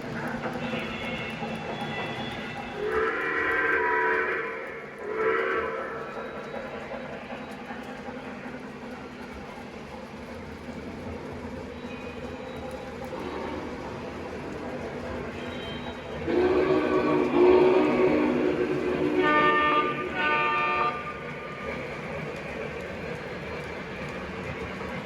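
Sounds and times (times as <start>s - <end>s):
model locomotive running: 0.0s - 25.0s
model train horn signal: 15.3s - 21.2s.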